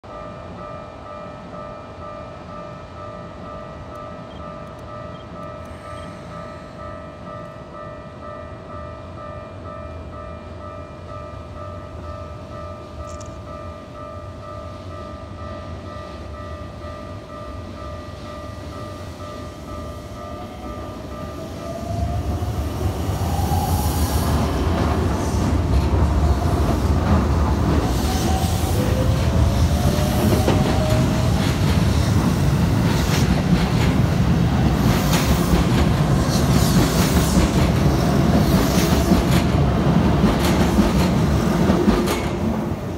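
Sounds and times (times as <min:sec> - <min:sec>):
crossing bell ringing: 0:00.0 - 0:22.0
train rumbling on rails: 0:00.0 - 0:42.9
train whine rising in pitch: 0:19.4 - 0:32.8.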